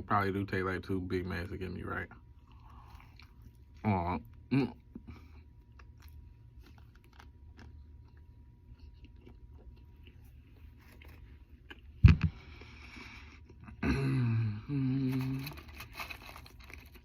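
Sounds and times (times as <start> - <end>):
person chewing: 2.4 - 13.8.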